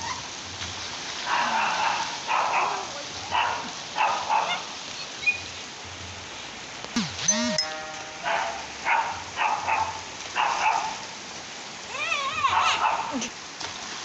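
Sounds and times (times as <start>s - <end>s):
steady rain: 0.0s - 14.0s
dog barking: 1.3s - 4.7s, 8.2s - 11.0s, 12.5s - 13.2s
dog yelping: 12.0s - 13.2s.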